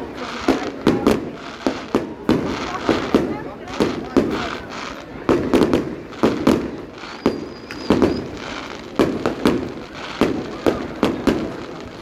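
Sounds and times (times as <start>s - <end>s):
firework shells bursting: 0.2s - 12.0s
faint high whistle: 7.1s - 8.4s.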